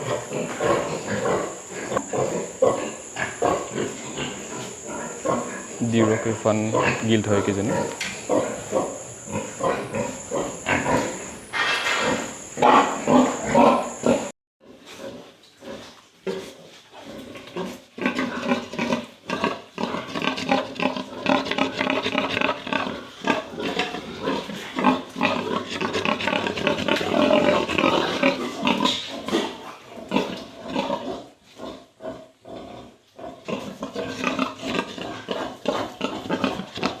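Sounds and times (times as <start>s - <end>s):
pigs squealing and grunting: 0.0s - 37.0s.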